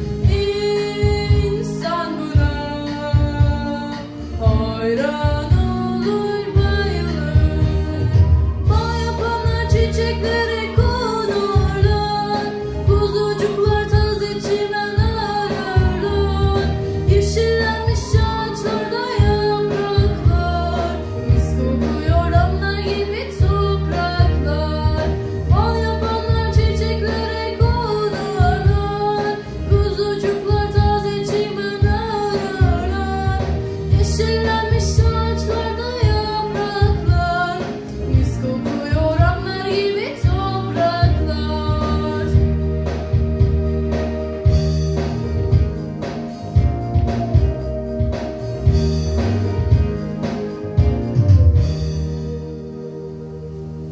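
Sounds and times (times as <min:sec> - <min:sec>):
woman singing with slides: 0:00.0 - 0:42.6
instrumental accompaniment with low beat: 0:00.0 - 0:53.9.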